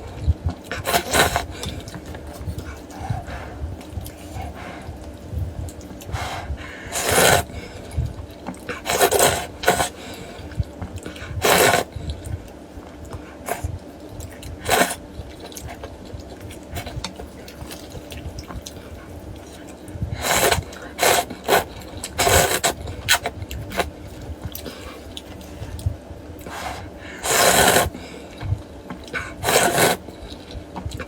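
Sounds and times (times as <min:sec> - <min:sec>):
wet chewing: 0:00.0 - 0:31.0
slurping noodle soup: 0:00.6 - 0:04.9, 0:06.0 - 0:08.0, 0:08.7 - 0:10.4, 0:11.1 - 0:12.2, 0:13.4 - 0:13.8, 0:14.4 - 0:15.9, 0:19.4 - 0:28.2, 0:29.1 - 0:30.5.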